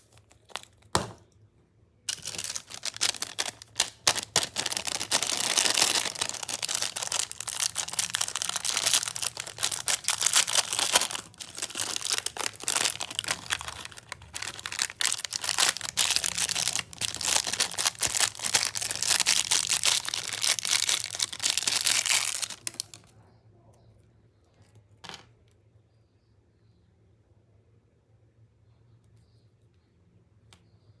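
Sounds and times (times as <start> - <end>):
plastic wrappers crinkling: 0.0 - 1.2, 2.1 - 23.1.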